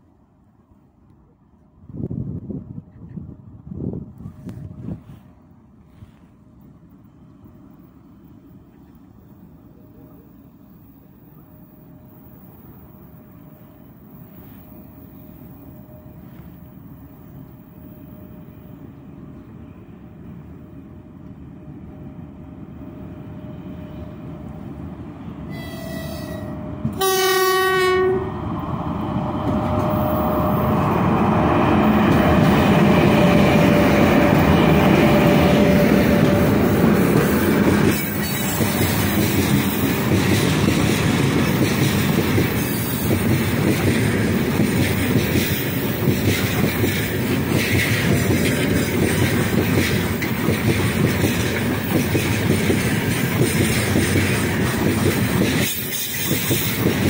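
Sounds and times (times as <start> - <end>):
train horn blast: 25.5 - 28.5
train wheels on rails clattering: 29.0 - 57.0.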